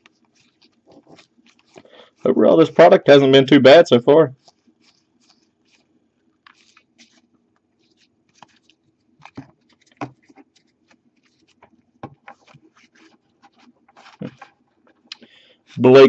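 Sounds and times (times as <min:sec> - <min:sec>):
cards rustling: 0:00.0 - 0:02.8, 0:04.3 - 0:16.0.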